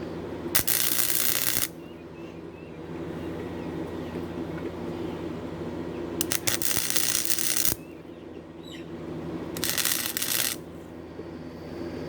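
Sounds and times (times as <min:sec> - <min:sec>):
steady low hum: 0:00.0 - 0:12.0
welder arc crackling: 0:00.6 - 0:01.8, 0:06.2 - 0:07.8, 0:09.5 - 0:10.7.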